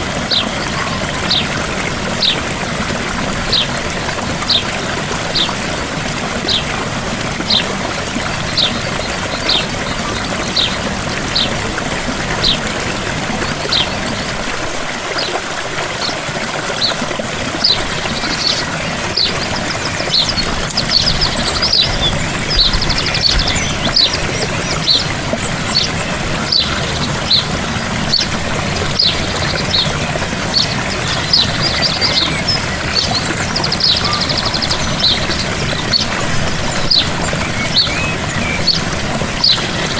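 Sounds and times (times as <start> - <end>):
gentle waterfall: 0.0 - 39.9
bird chirping: 19.2 - 27.5.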